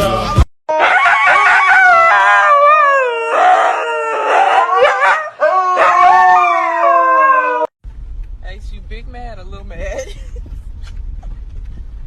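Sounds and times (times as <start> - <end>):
dog howling: 0.7 - 7.7.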